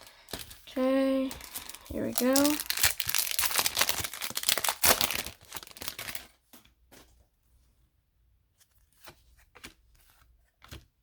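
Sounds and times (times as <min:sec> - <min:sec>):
foil wrapper tearing and crinkling: 0:01.4 - 0:06.4.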